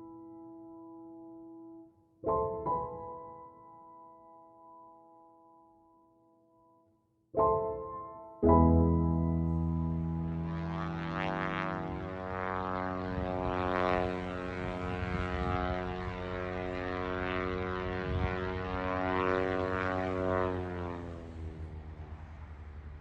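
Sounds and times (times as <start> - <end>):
propeller airplane engine drone: 8.4 - 23.0.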